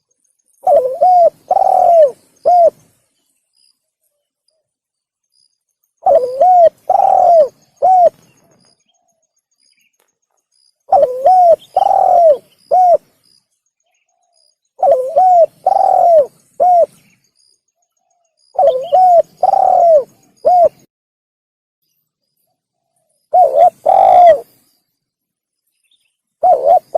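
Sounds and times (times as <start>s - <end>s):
dove cooing: 0.6s - 2.9s, 6.0s - 8.3s, 10.9s - 13.1s, 14.8s - 17.0s, 18.5s - 20.9s, 23.3s - 24.5s, 26.4s - 26.9s.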